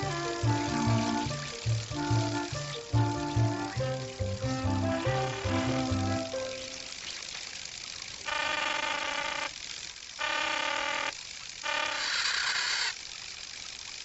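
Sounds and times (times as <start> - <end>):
cartoon horn honks: 0.0 - 6.6.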